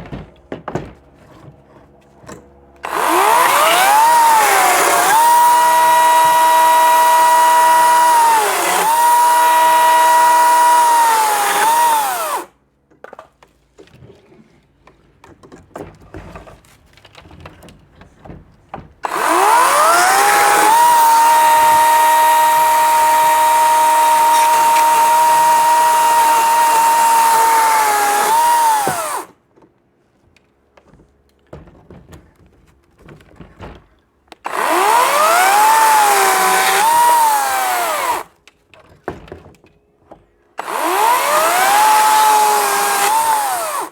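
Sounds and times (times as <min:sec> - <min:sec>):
chainsaw whining: 0:02.8 - 0:12.5, 0:19.0 - 0:29.3, 0:34.4 - 0:38.3, 0:40.6 - 0:43.9.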